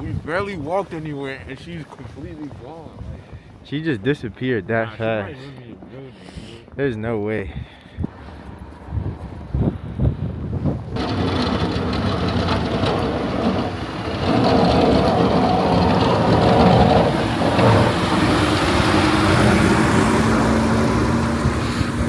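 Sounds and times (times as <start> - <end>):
motor vehicle running: 10.8 - 22.0.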